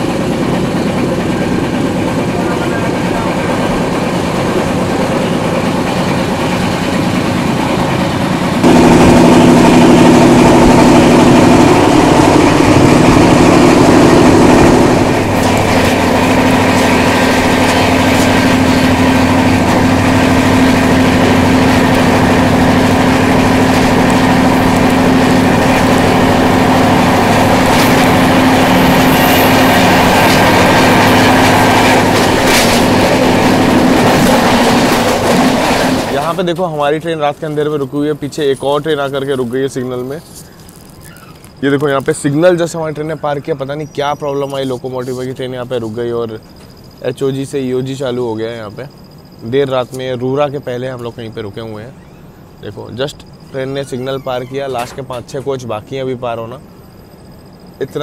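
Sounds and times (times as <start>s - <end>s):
train wheels on rail: 0.0s - 39.4s
steady hum: 0.0s - 58.0s.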